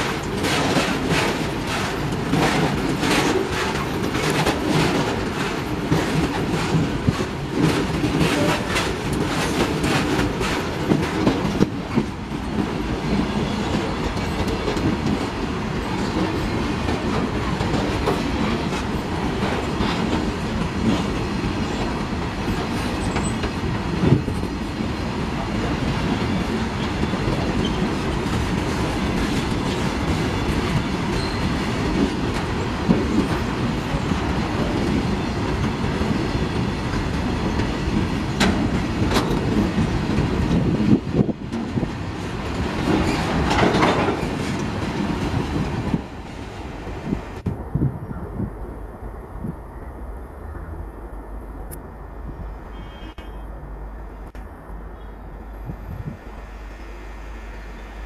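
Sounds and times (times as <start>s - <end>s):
rhythmic clickety-clack: 0.0s - 24.6s, 25.7s - 46.4s
freight train wheels rumbling: 0.0s - 58.0s.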